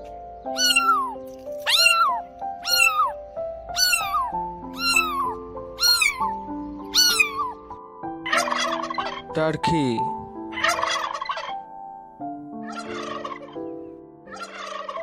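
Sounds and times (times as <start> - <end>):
cat meowing: 0.5 - 7.7.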